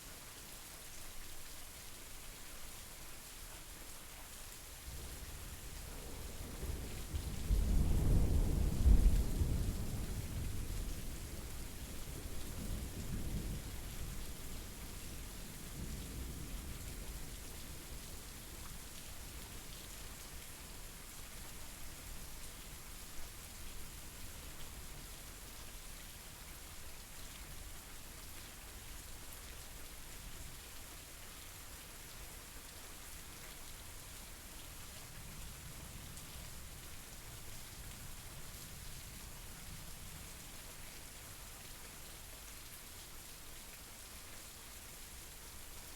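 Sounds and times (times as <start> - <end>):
steady rain falling: 0.0 - 45.9
low roll of thunder: 6.1 - 13.8.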